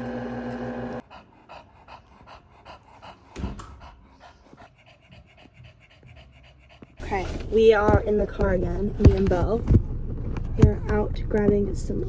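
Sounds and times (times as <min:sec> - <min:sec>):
dog panting: 0:01.0 - 0:09.8.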